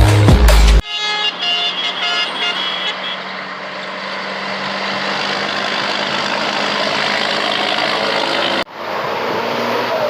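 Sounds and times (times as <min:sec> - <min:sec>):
truck engine running: 0:02.5 - 0:08.7.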